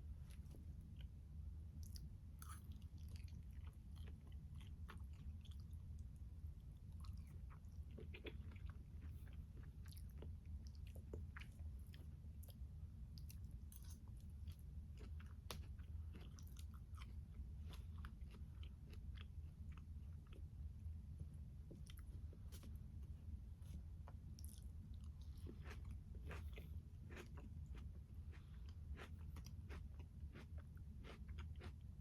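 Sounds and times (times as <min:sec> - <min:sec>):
steady low hum: 0:00.0 - 0:32.0
close chewing with wet crunches: 0:24.4 - 0:31.9.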